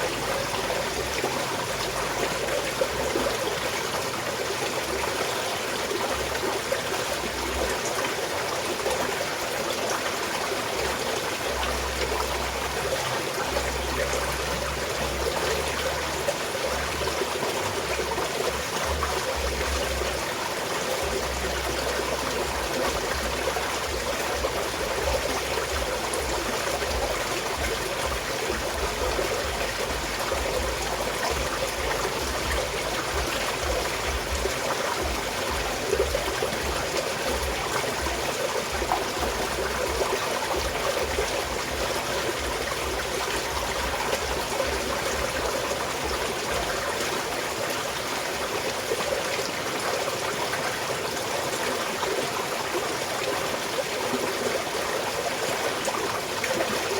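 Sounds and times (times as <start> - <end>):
stream flowing over rocks: 0.0 - 56.9.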